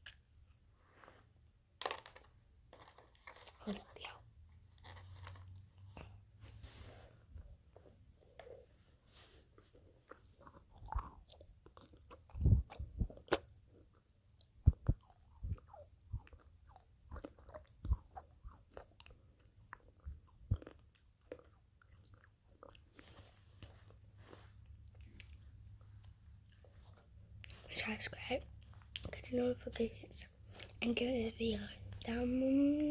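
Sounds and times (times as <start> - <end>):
person chewing: 9.6 - 27.6, 28.6 - 29.2.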